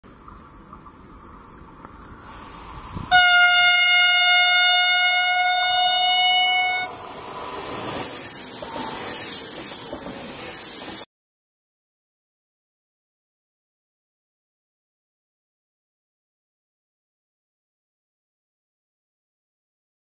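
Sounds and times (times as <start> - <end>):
train rushing past: 0.2 - 11.1
train horn blast: 3.1 - 7.0.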